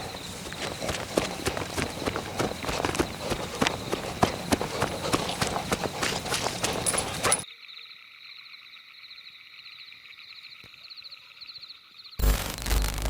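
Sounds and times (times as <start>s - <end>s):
running footsteps through undergrowth: 0.0s - 7.4s
chirring insect night chorus: 0.0s - 12.2s.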